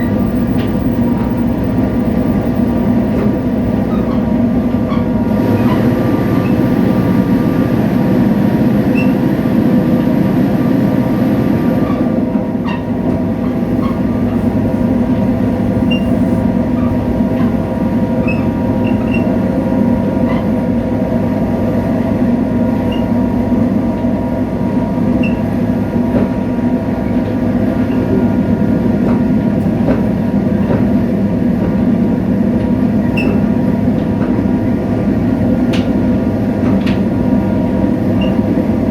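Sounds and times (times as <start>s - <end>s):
faint rail ticks: 0.0s - 5.7s, 29.0s - 31.9s, 32.6s - 38.6s
diesel locomotive engine drone: 0.0s - 38.9s.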